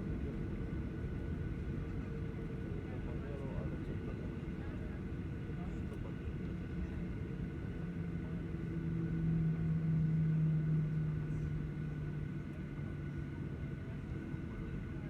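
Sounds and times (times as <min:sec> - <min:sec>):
droning hum: 0:00.0 - 0:15.0
low vehicle rumble: 0:05.8 - 0:14.9.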